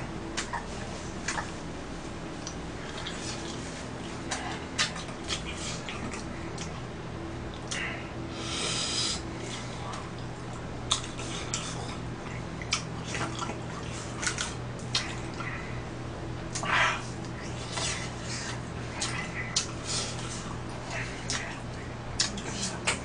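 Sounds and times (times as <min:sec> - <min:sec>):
low electrical hum: 0:00.0 - 0:23.0
chewing rice cakes: 0:02.4 - 0:06.9, 0:09.5 - 0:15.7, 0:16.4 - 0:23.0.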